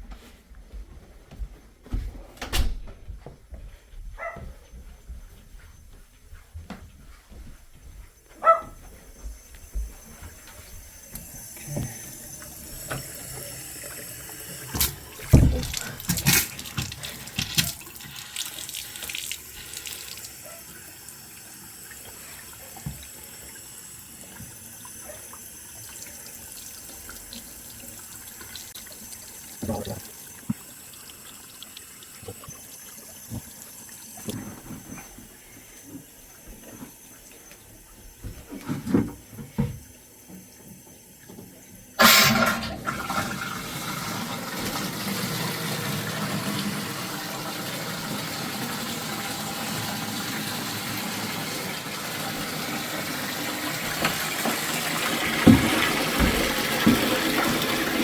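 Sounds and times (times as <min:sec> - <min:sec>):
water running from faucet: 0:08.8 - 0:58.0
knocks and thumps: 0:14.8 - 0:17.6, 0:55.4 - 0:57.4.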